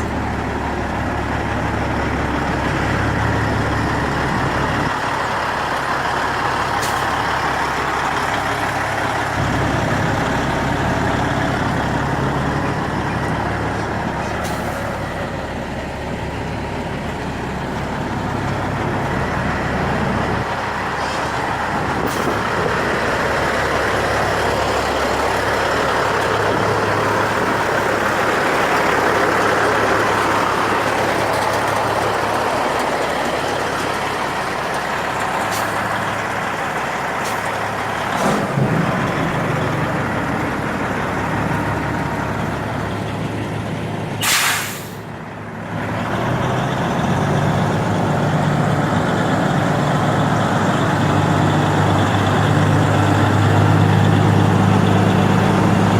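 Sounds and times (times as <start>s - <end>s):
diesel truck engine running: 0.0s - 55.9s
air brake hiss: 44.2s - 45.1s.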